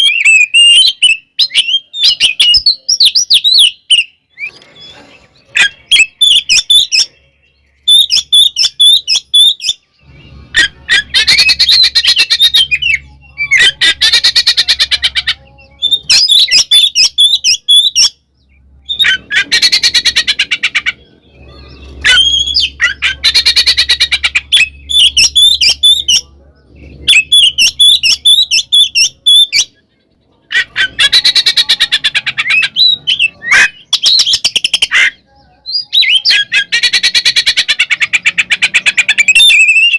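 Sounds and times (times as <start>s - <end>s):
bird singing whistled phrases: 0.0s - 5.0s, 7.8s - 18.2s, 21.5s - 26.3s, 31.0s - 37.4s, 39.1s - 39.9s.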